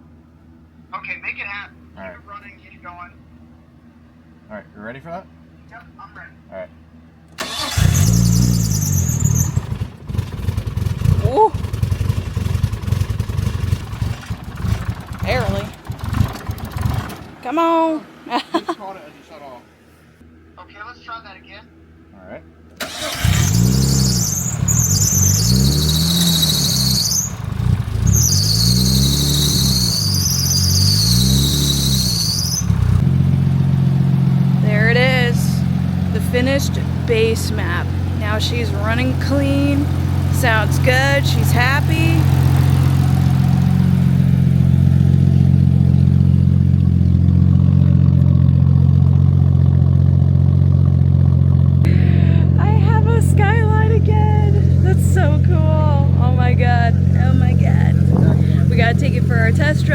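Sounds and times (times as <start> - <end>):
car engine revving: 7.4 - 19.8, 22.8 - 59.9
turbo whine: 22.8 - 51.3.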